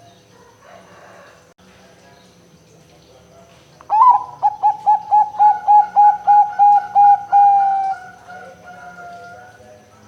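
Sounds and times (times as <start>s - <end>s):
dove cooing: 3.9s - 9.5s.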